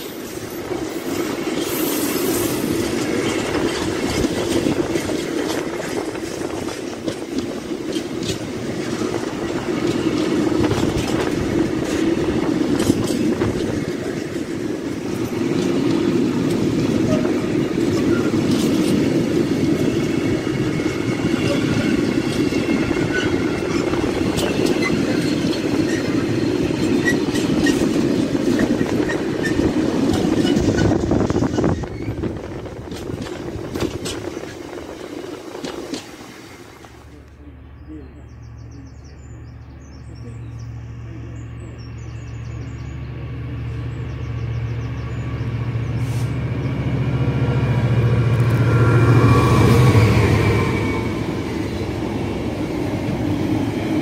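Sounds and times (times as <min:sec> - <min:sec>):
steel wheels rumbling on rail: 0:00.0 - 0:54.0
wheels clicking over rail joints: 0:02.5 - 0:37.2.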